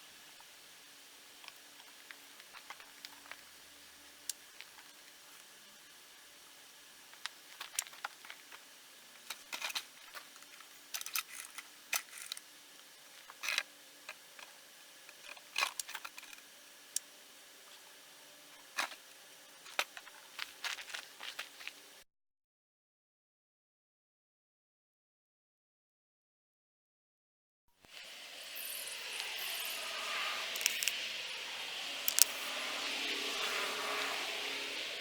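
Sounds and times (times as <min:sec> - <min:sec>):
faint steady hum: 0:00.0 - 0:22.0, 0:27.9 - 0:35.0
objects being handled clicking: 0:30.6 - 0:31.0, 0:32.1 - 0:32.4.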